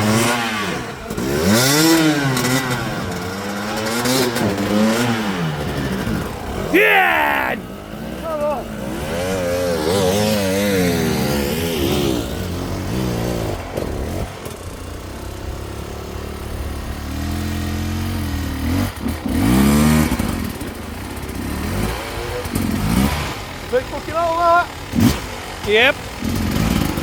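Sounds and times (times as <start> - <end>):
dirt bike engines revving: 0.0 - 14.2, 18.0 - 27.0.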